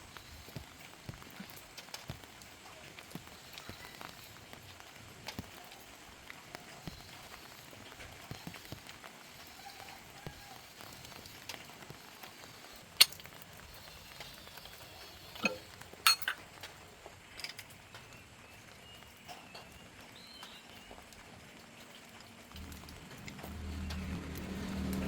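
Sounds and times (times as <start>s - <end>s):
faint steady hiss: 0.0s - 25.0s
sharp clicks and clinks: 15.4s - 16.4s.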